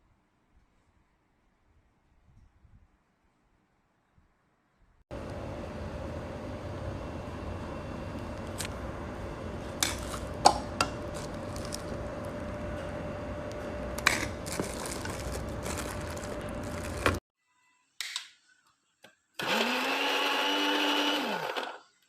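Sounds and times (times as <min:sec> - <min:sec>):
steady hum: 0:05.1 - 0:17.2.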